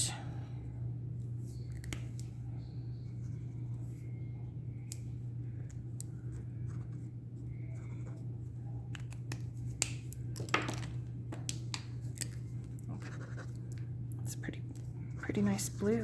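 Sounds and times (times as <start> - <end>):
steady low hum: 0.0 - 16.0
pen scratching: 13.0 - 13.6.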